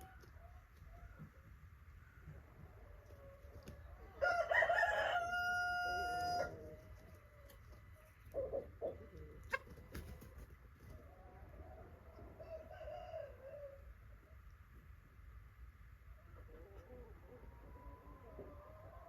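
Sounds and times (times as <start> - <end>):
chicken clucks: 0.0 - 14.9, 16.1 - 19.0
rooster crowing: 4.1 - 6.8, 12.3 - 13.8.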